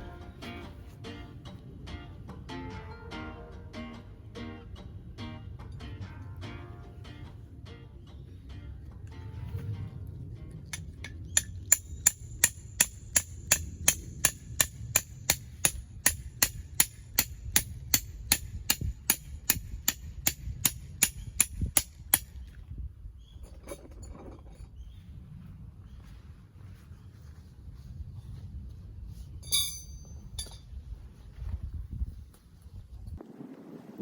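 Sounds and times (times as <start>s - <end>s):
hammer striking metal peg: 29.4s - 30.6s.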